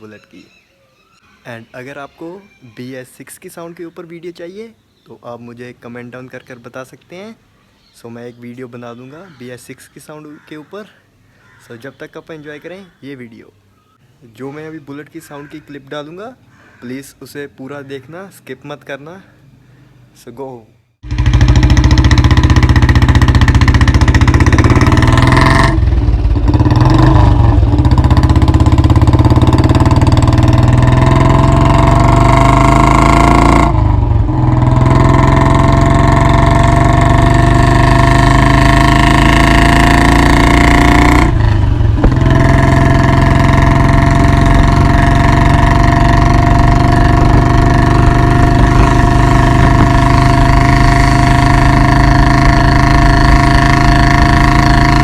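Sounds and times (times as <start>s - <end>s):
loud unmuffled motorcycle engine: 21.0s - 55.0s.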